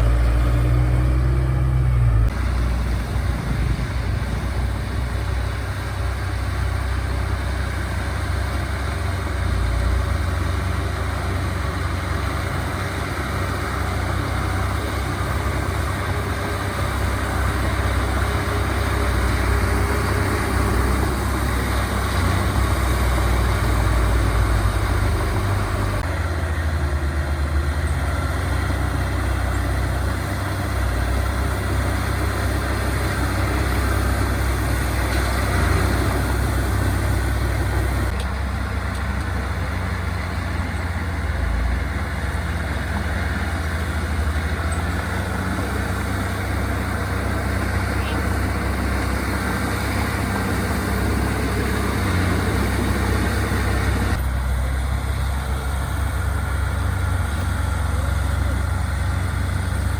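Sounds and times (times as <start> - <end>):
diesel engine rumble: 0.0 - 59.9
machinery grinding and clatter: 0.0 - 59.9.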